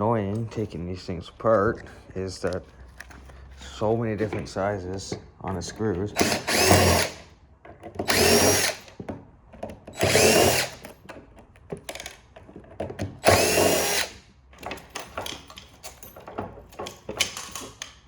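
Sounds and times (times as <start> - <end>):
power drill motor whine: 6.1 - 7.2, 8.0 - 8.9, 10.0 - 10.9, 13.2 - 14.2.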